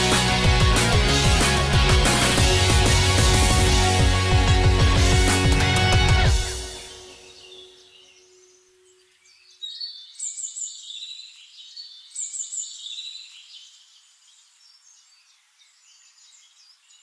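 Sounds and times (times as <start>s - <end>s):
songbirds chirping and warbling: 5.8s - 17.0s.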